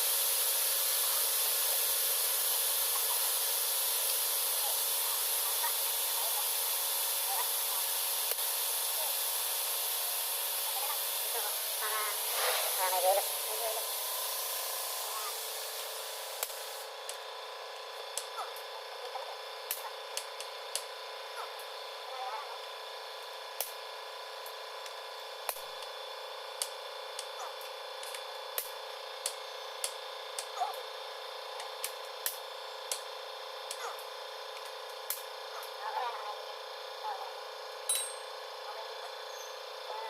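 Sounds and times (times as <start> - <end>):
high air hiss: 0.0 - 17.0
workshop hum: 0.0 - 40.0.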